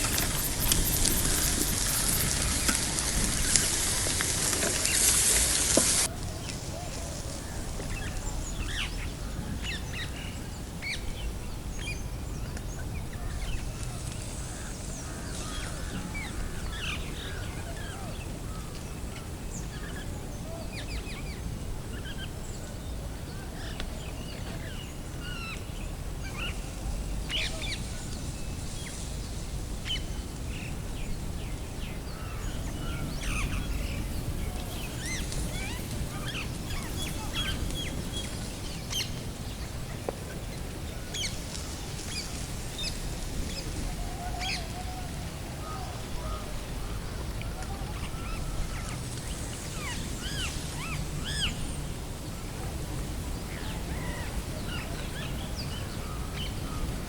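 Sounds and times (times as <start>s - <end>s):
steady low rumble: 0.0s - 5.0s
birds chirping: 0.0s - 20.1s, 23.6s - 52.4s.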